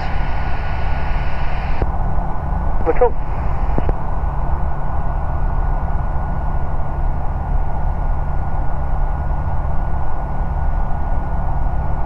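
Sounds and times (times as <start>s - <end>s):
thin steady whine: 0.0s - 4.2s
aircraft engine and propeller droning: 0.0s - 12.0s.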